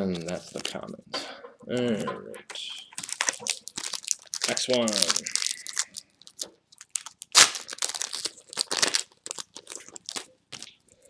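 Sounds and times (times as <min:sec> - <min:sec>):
plastic wrapper crinkling and tearing: 0:02.9 - 0:10.7.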